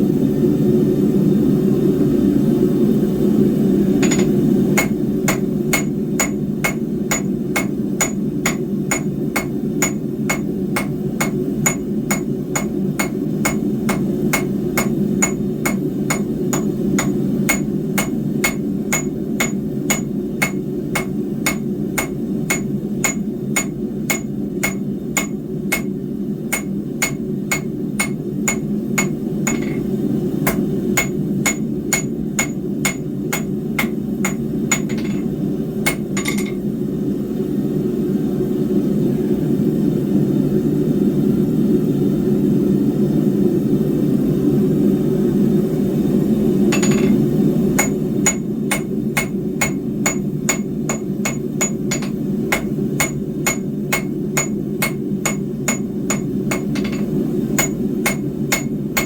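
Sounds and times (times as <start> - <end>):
hammer striking steel on anvil: 4.0 - 36.6, 46.7 - 59.0.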